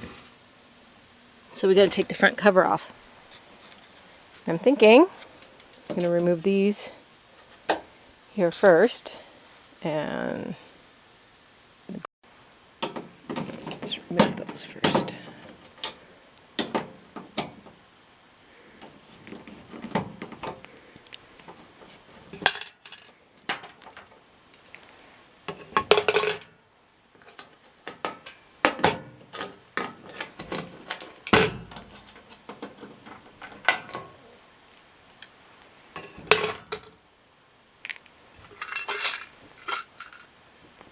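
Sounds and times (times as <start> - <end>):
rattling clatters: 38.6 - 40.3.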